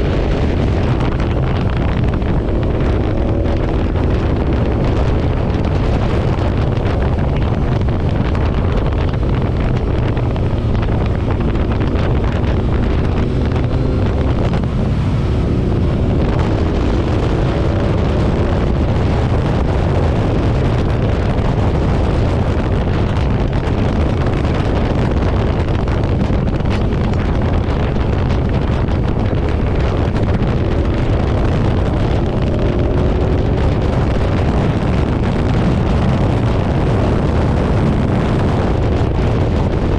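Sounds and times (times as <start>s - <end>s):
motorcycle engine running: 0.0s - 39.9s
wind buffeting microphone: 0.0s - 39.9s.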